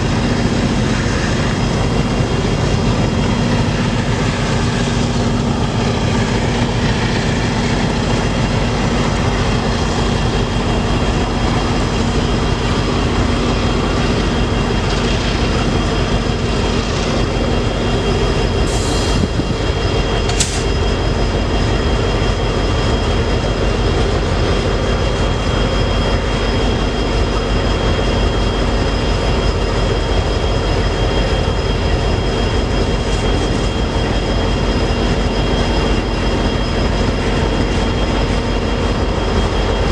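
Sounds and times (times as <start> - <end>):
freight train rumbling past: 0.0 - 39.9
high-pitched hisses or squeals: 18.6 - 19.4.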